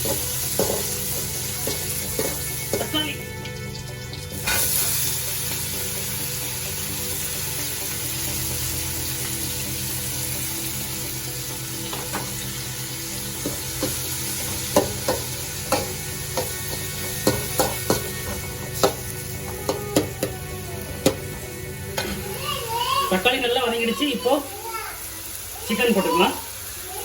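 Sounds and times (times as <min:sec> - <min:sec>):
spoon knocking against pan: 0:00.0 - 0:03.0, 0:13.4 - 0:20.4, 0:21.0 - 0:21.3
tomatoes sizzling in oil: 0:00.0 - 0:27.0.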